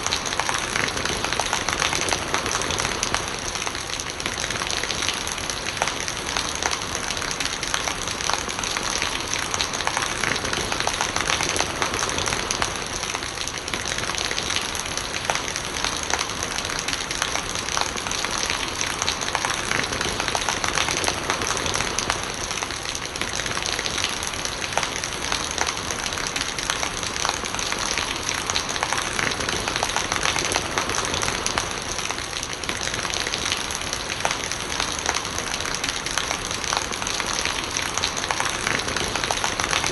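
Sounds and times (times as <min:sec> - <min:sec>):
heavy rain: 0:00.0 - 0:39.9
rainwater gurgling: 0:00.0 - 0:39.9.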